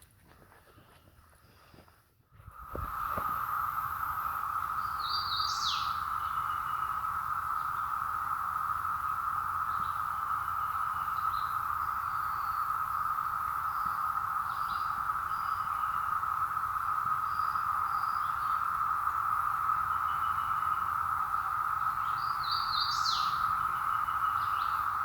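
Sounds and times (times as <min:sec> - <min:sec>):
cicadas droning: 0:02.4 - 0:25.0
bird chirping: 0:04.6 - 0:08.1, 0:09.6 - 0:16.2, 0:19.7 - 0:25.0.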